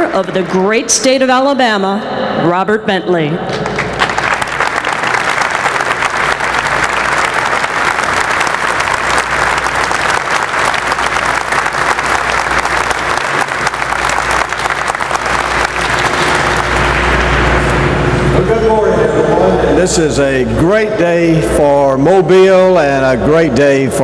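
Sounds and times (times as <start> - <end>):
large audience applauding: 3.6 - 18.4.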